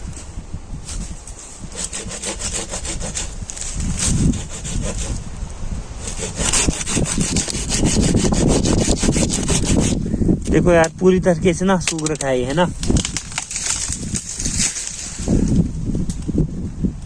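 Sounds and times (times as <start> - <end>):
wind rumbling on microphone: 0.0 - 17.0
saw cutting dry wood: 1.3 - 5.3, 6.0 - 10.1.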